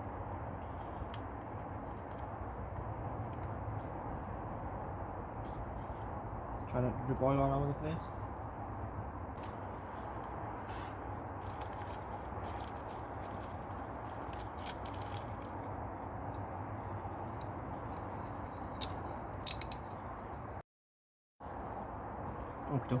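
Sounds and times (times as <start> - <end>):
small parts clicking and tapping: 17.3 - 20.0.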